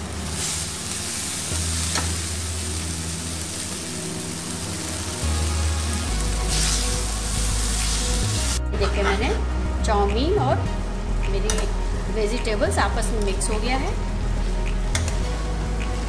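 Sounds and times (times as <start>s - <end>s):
noodles sizzling in a hot pan: 0.0s - 8.6s.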